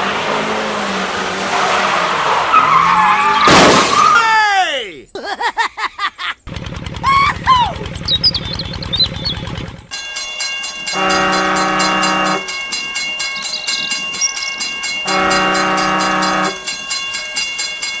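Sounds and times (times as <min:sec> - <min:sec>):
wheels clattering on rails: 0:06.5 - 0:18.0
train horn blasts: 0:10.9 - 0:12.6, 0:15.0 - 0:16.8.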